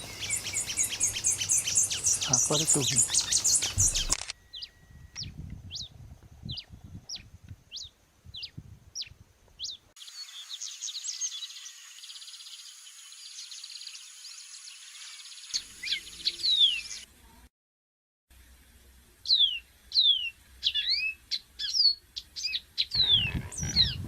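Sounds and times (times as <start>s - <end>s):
chorus of high chirps: 0.0s - 5.9s, 19.4s - 24.0s
bird chirping: 0.0s - 17.1s, 19.2s - 24.0s.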